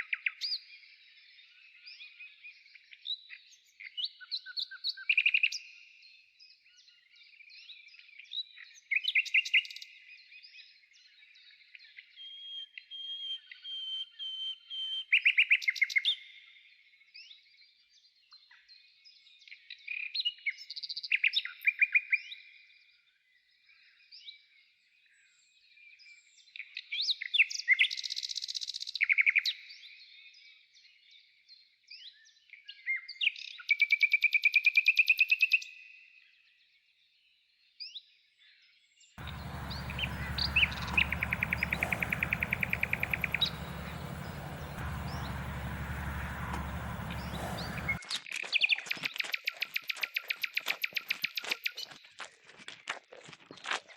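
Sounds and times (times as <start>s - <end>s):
songbird trilling and chirping: 39.2s - 48.0s.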